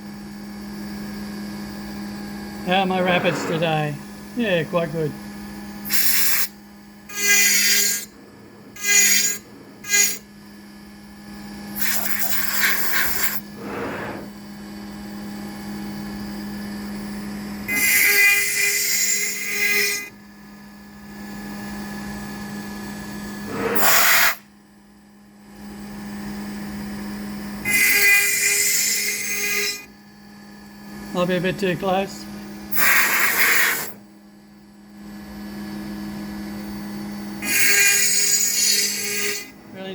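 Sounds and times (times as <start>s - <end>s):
router spindle running: 2.6s - 14.4s, 37.4s - 39.9s
cutting noise bursts: 2.7s - 4.9s, 7.1s - 10.2s, 11.8s - 14.3s.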